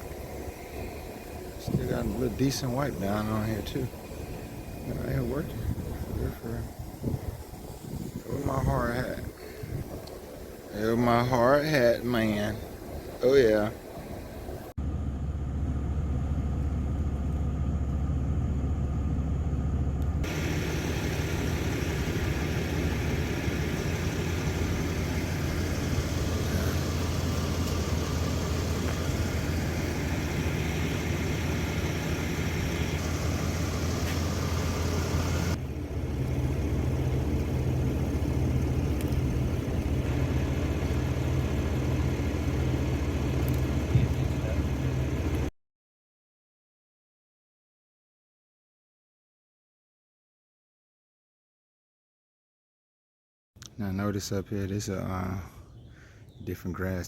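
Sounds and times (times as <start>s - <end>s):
engine humming: 0.0s - 45.5s.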